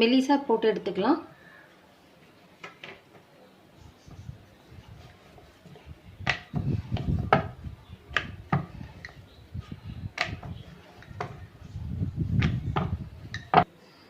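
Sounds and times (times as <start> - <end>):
rolling pin rumbling on dough: 4.8 - 13.7
wooden knocks: 6.2 - 9.2, 12.4 - 13.7.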